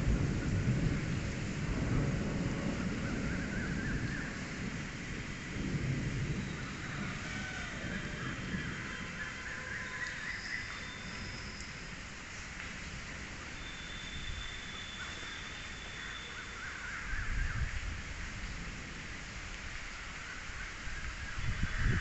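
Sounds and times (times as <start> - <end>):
crows cawing: 6.7 - 10.8, 15.9 - 17.6.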